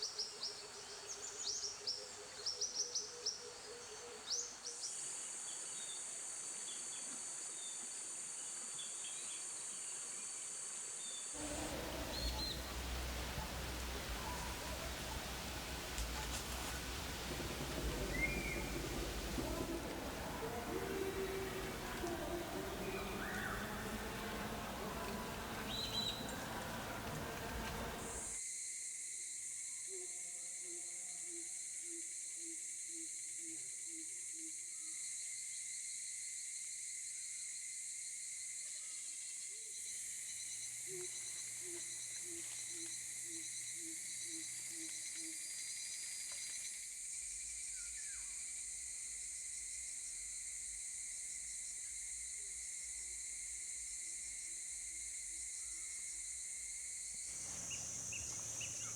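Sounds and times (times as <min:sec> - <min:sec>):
high insect chorus: 0:08.1 - 0:28.4, 0:34.7 - 0:58.9
bird hooting low: 0:11.4 - 0:28.4, 0:57.4 - 0:58.9.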